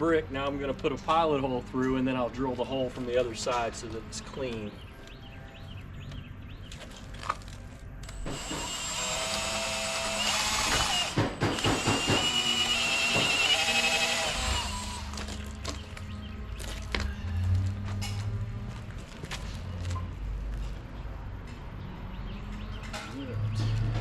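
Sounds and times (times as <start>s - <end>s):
power drill whining: 8.0s - 15.4s.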